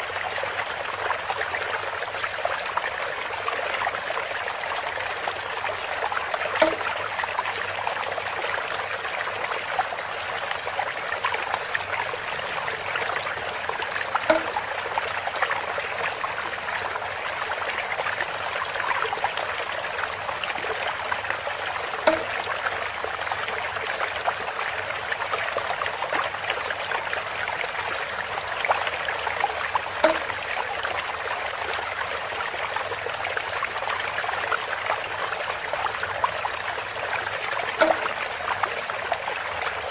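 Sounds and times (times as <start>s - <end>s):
water trickling through bamboo spout: 0.0s - 39.9s
bright water plop: 6.5s - 7.1s, 14.2s - 15.1s, 21.9s - 22.6s, 30.0s - 30.4s, 37.8s - 38.4s.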